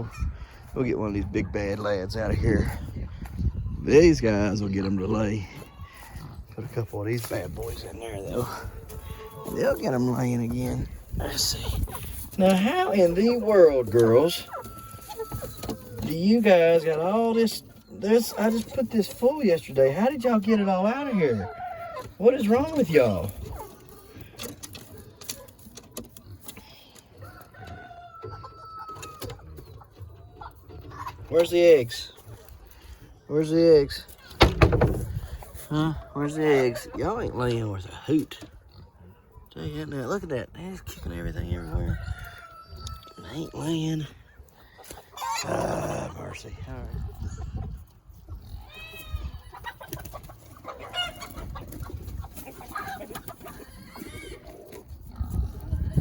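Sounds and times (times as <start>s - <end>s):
chickens clucking: 0.0s - 56.0s
rooster crowing: 14.5s - 15.6s
clicks and knocks: 34.3s - 35.2s.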